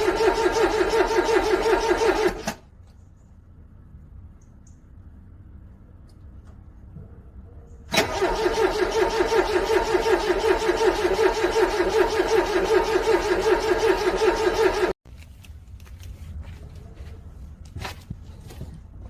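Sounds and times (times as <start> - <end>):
car engine cranking: 0.0 - 2.6, 7.9 - 15.0.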